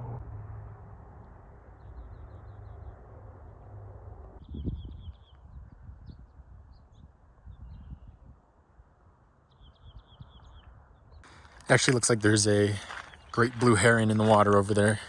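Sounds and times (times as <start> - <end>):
small bird chirping: 4.4 - 8.2.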